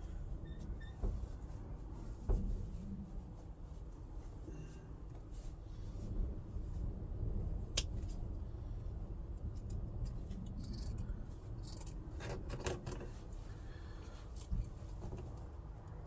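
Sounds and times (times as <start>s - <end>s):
low steady rumble: 0.0s - 16.0s
light clicks and rustling: 9.4s - 16.0s.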